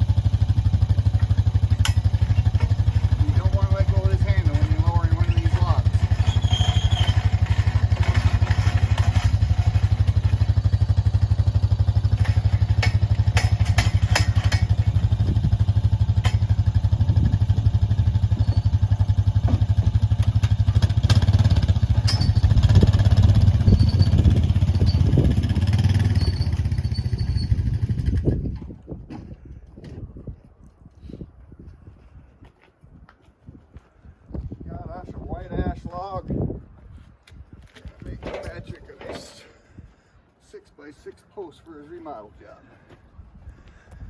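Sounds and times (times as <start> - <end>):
sawmill engine running: 0.0 - 26.2.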